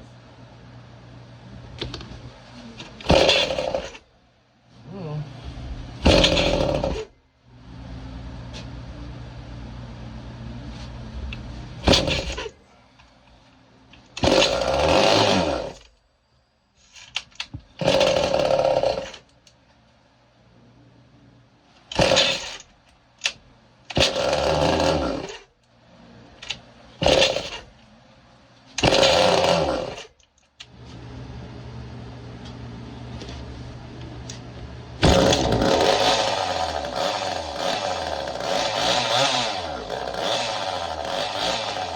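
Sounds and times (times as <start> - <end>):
chainsaw idling and revving: 3.0 - 4.0, 6.0 - 7.1, 14.2 - 15.9, 17.8 - 19.3, 22.0 - 22.6, 24.0 - 25.5, 27.0 - 27.6, 28.8 - 30.1, 35.0 - 41.9.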